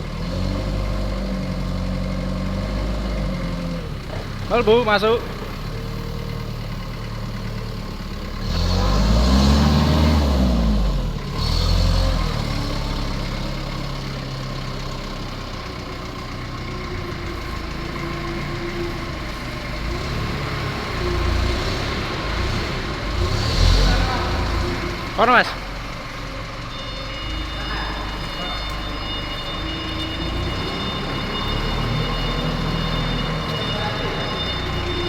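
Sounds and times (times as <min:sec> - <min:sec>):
diesel forklift engine idling and revving: 0:00.0 - 0:35.0.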